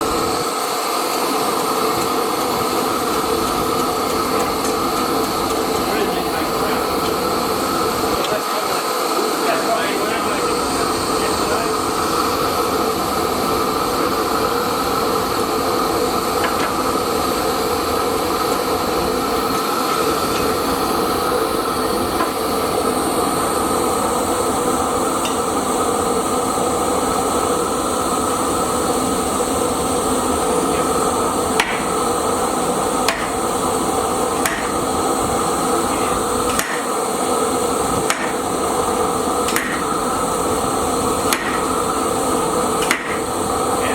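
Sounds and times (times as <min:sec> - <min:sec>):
hammer strikes on hot steel: 0:16.4 - 0:16.8, 0:22.2 - 0:22.4, 0:25.2 - 0:25.5, 0:31.6 - 0:32.1, 0:33.0 - 0:33.5, 0:34.3 - 0:34.9, 0:35.9 - 0:37.0, 0:37.9 - 0:40.0, 0:41.2 - 0:41.8, 0:42.8 - 0:43.3.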